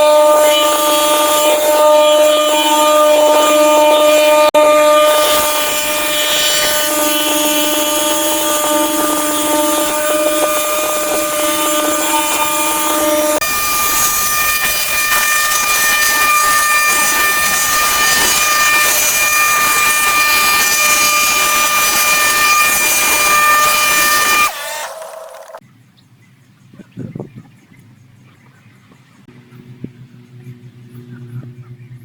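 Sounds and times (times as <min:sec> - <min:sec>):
power tool motor humming: 0:00.0 - 0:25.6.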